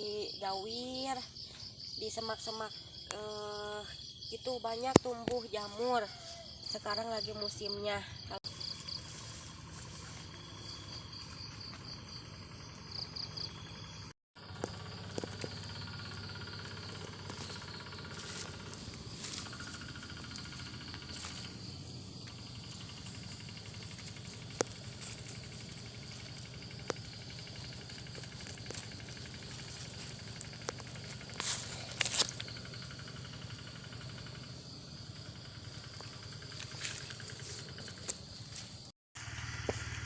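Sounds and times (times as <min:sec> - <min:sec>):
high insect drone: 0:00.0 - 0:40.0
rustling: 0:22.4 - 0:32.5.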